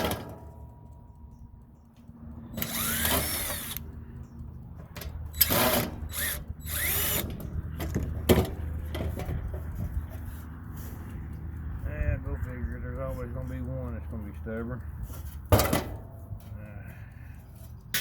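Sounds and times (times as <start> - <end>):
power drill running in bursts: 2.6 - 3.8, 5.4 - 7.3.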